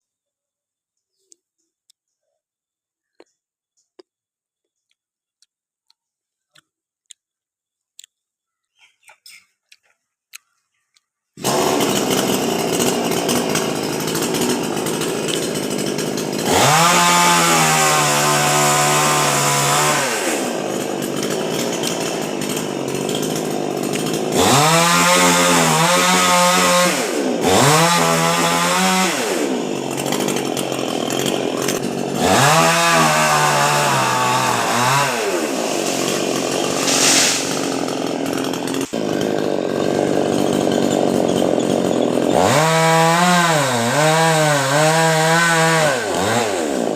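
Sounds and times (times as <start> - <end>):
chainsaw cutting wood: 11.4 - 46.9.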